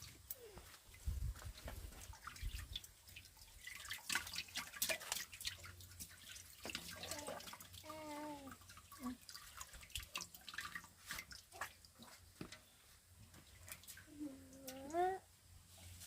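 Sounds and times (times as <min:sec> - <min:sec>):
water drips: 0:00.0 - 0:15.1.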